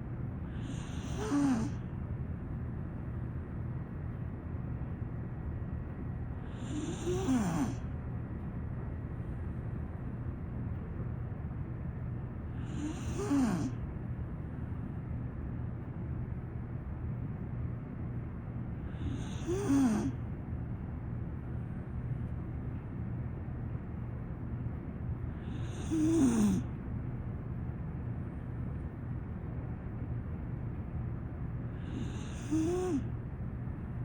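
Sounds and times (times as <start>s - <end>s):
steady low hum: 0.0s - 34.0s
dog snoring: 0.5s - 1.8s, 6.4s - 7.9s, 12.5s - 13.8s, 18.9s - 20.2s, 25.3s - 26.7s, 31.7s - 33.1s.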